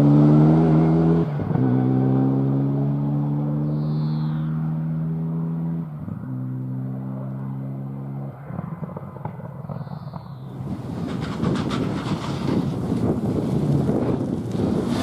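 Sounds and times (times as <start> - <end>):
rally car engine high revving: 0.0 - 8.2
engine burble with sharp pops: 8.5 - 15.0.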